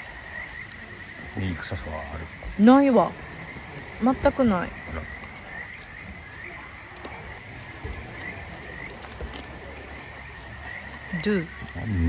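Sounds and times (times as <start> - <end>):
frogs calling: 0.0 - 12.0
faint clicks: 2.4 - 11.9.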